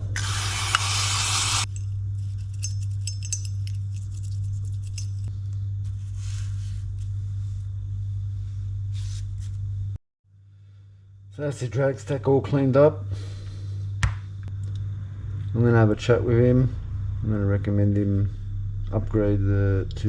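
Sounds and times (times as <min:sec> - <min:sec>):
spray hissing: 0:00.0 - 0:01.7
low hum: 0:00.0 - 0:20.0
metal washers clinking: 0:01.7 - 0:05.3.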